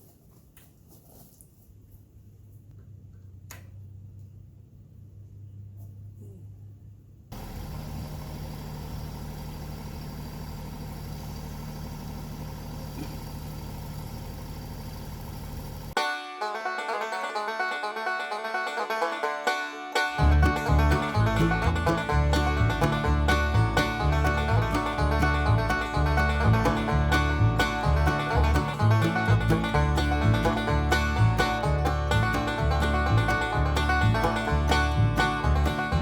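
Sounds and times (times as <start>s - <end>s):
tractor diesel engine running: 7.3s - 16.0s, 20.1s - 36.0s
banjo bluegrass music: 16.0s - 36.0s.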